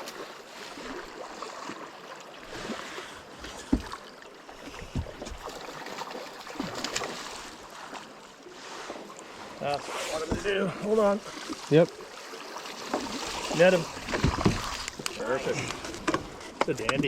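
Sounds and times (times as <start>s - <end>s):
water rushing around a boat: 0.0s - 17.0s
dull knocks: 14.0s - 15.0s.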